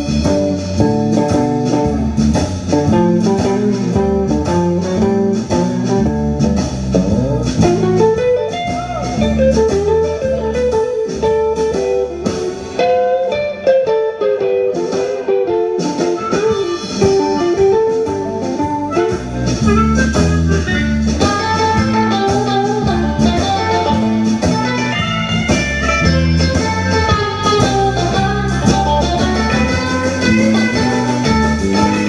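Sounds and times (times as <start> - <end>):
electric guitar lead: 0.0 - 32.0
walking bass guitar: 0.0 - 32.0.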